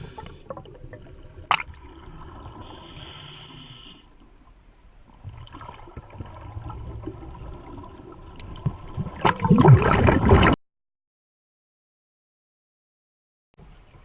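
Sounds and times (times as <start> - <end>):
exhaled bubbles gurgling: 0.0 - 3.2, 5.2 - 10.6
underwater water noise: 0.0 - 10.6.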